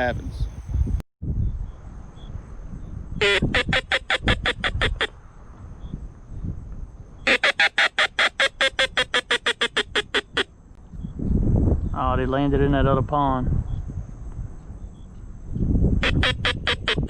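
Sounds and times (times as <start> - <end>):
duck call quacks: 3.2 - 5.2, 7.3 - 10.5, 16.0 - 17.0.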